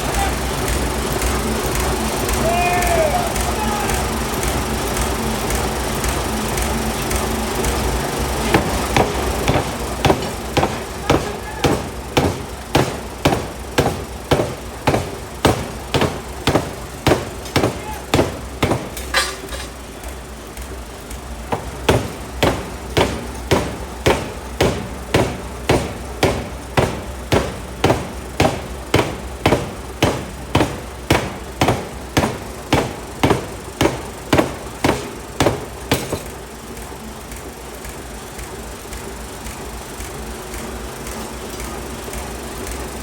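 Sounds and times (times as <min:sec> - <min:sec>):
hammer low running hum: 0:00.0 - 0:41.3
forging hammer blows on metal: 0:08.3 - 0:19.8, 0:21.4 - 0:36.4.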